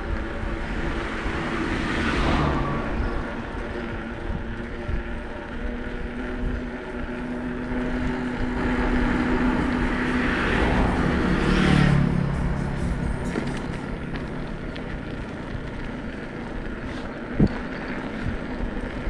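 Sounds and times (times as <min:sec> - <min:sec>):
bicycle tyres rolling: 0:00.0 - 0:19.0
motor vehicle passing: 0:00.0 - 0:19.0.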